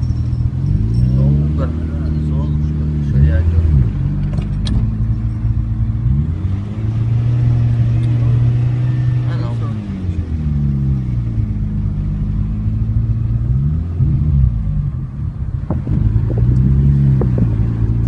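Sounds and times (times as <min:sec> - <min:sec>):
car engine from inside cabin: 0:00.0 - 0:18.0.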